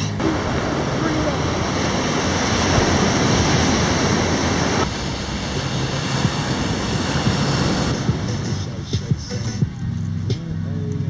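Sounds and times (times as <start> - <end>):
ocean surf: 0.0 - 9.6
wind at the shore: 0.0 - 9.8.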